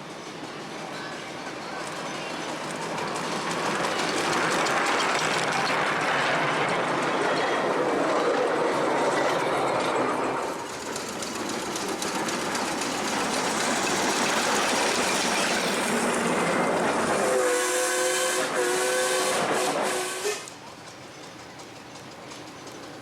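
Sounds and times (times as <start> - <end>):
steam locomotive hissing: 0.0 - 23.0
two-note locomotive whistle: 17.2 - 20.5.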